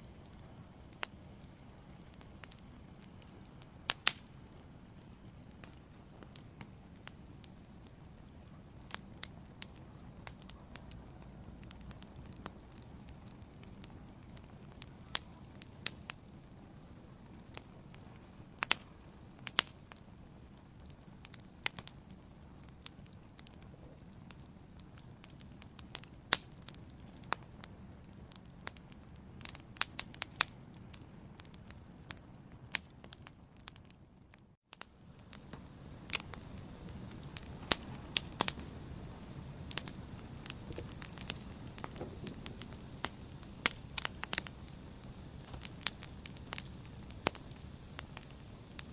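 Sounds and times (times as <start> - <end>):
low rumble of flames: 0.0 - 48.9
wood fire crackling and popping: 0.0 - 48.9.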